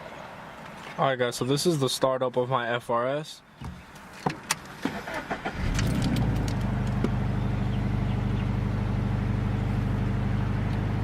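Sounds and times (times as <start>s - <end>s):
car engine starting and idling: 4.5s - 11.0s.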